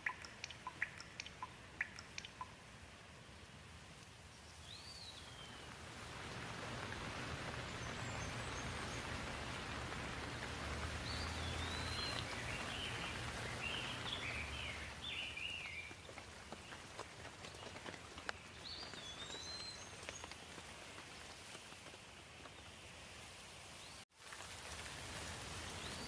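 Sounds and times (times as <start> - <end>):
bird chirping: 0.0 - 2.6, 4.4 - 5.8, 7.5 - 16.8, 18.3 - 20.4
rain falling: 0.0 - 22.6, 24.2 - 26.0.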